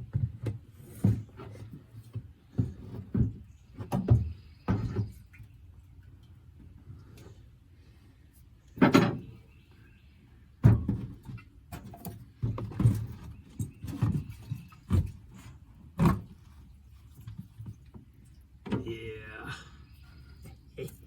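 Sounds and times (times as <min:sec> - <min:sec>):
knocks and clunks: 0:10.6 - 0:15.2.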